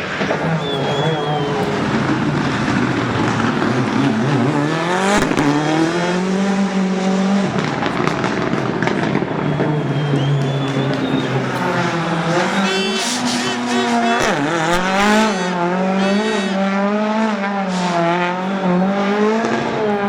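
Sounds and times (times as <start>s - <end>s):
tyre squeal: 0.0s - 5.9s, 9.5s - 16.4s
rally car engine revving: 0.0s - 20.0s.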